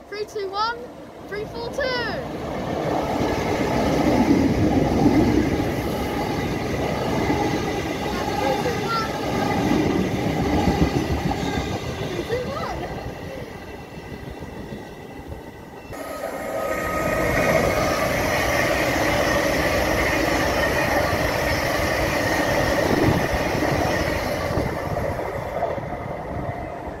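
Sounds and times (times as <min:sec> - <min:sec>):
train wheels rumbling on rail: 0:00.0 - 0:27.0
train motor whine: 0:15.2 - 0:25.1.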